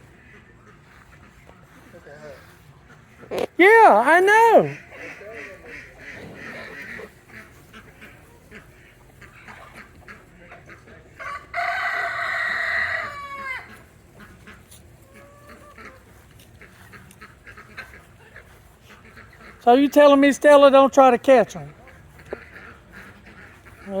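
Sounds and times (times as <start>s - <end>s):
fowl calls and clucking: 0.0s - 24.0s
rooster crowing: 11.2s - 13.8s.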